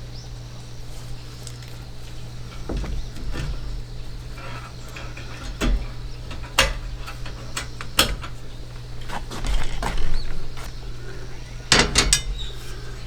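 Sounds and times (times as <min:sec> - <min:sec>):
steady low hum: 0:00.0 - 0:13.0
clicks and knocks from handling: 0:01.4 - 0:10.8.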